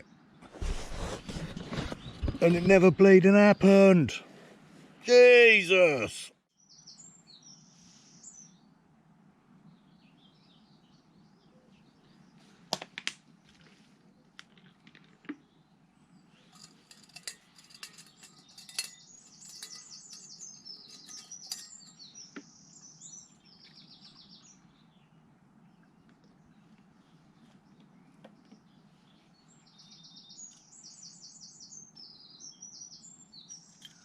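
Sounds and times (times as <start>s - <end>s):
small songbirds chirping trills: 6.5s - 12.7s, 15.4s - 34.0s.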